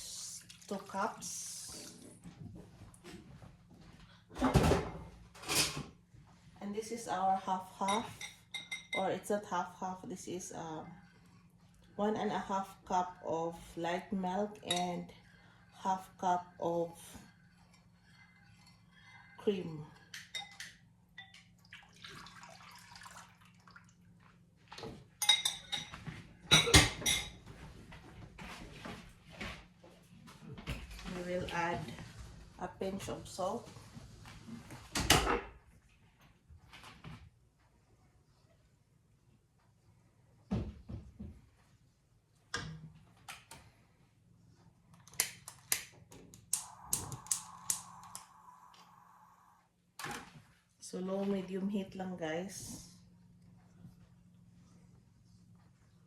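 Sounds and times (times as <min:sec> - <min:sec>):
milk pouring into a saucepan: 0:21.2 - 0:24.2.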